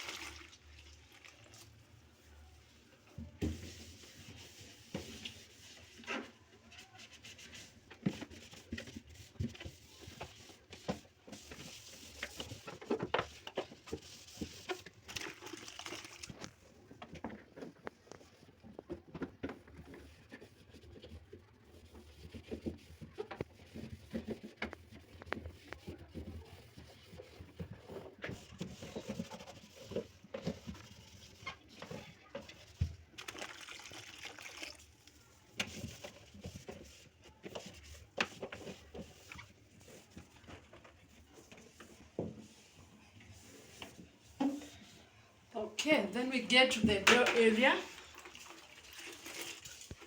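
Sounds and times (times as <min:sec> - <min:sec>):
water trickling: 0:47.6 - 0:50.0.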